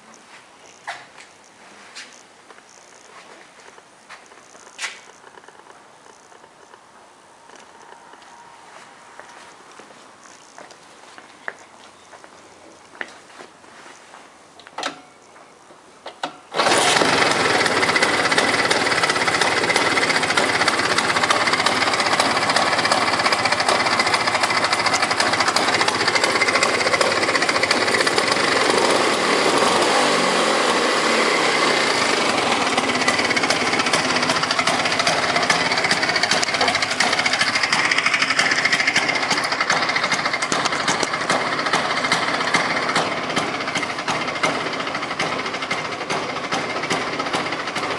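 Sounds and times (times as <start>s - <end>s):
scooter engine starting and running: 16.2s - 47.9s.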